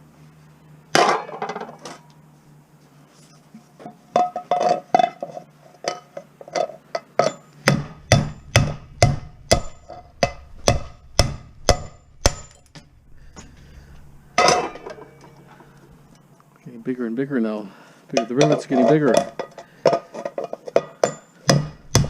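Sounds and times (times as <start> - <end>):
hammer blows on metal: 7.6 - 12.7.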